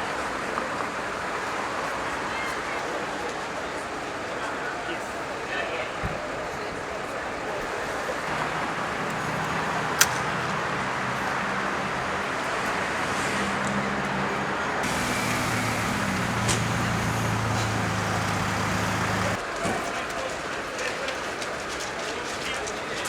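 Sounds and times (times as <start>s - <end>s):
urban traffic noise: 5.0s - 19.4s
vehicle engine idling: 14.8s - 19.4s.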